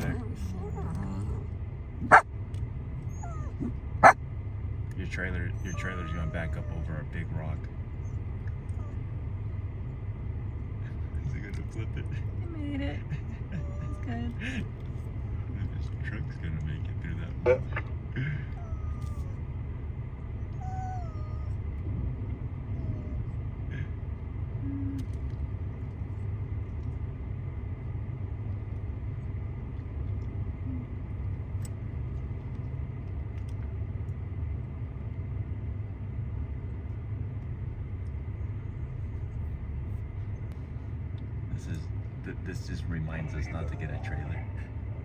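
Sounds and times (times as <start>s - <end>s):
off-road truck engine idling: 21.6s - 45.0s.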